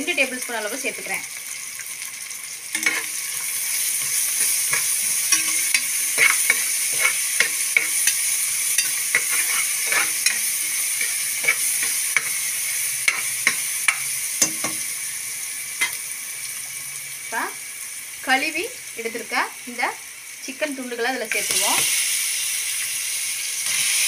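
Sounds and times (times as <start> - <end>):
onions sizzling in oil: 0.0 - 24.0
utensil scraping metal pot: 2.7 - 14.8.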